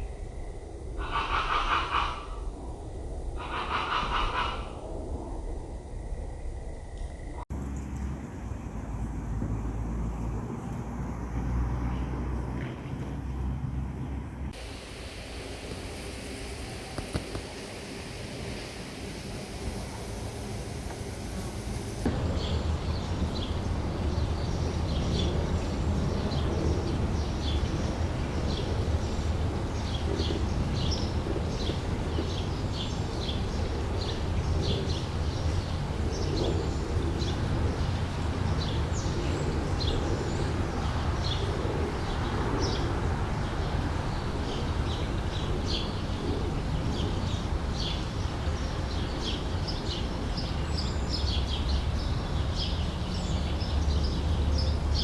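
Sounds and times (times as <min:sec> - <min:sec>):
steady low rumble: 0:02.3 - 0:55.0
small birds chirping: 0:18.5 - 0:55.0.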